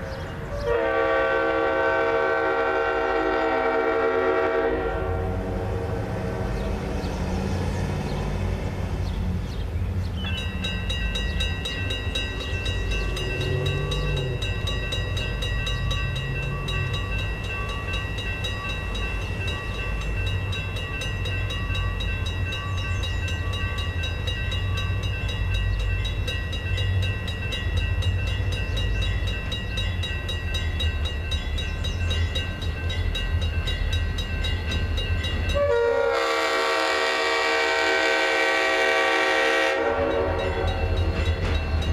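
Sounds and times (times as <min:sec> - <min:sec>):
diesel train rumble: 0:00.0 - 0:41.9
locomotive horn: 0:00.6 - 0:06.6, 0:35.6 - 0:41.1.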